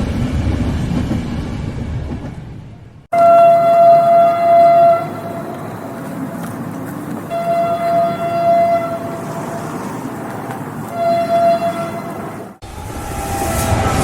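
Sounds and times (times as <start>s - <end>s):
moving train rumble: 0.0s - 14.0s
train horn blasts: 3.1s - 5.6s, 7.3s - 10.0s, 10.9s - 14.0s.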